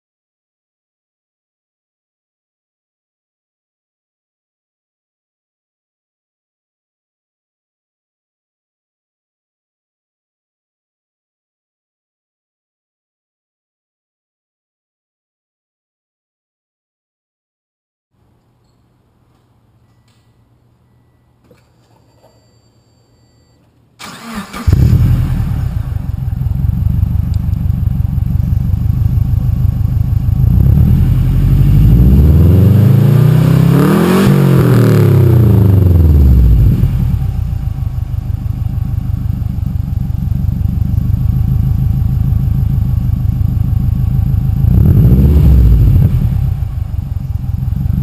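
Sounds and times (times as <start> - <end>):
car engine starting and revving: 24.0 - 29.2, 30.2 - 42.9, 43.6 - 48.0.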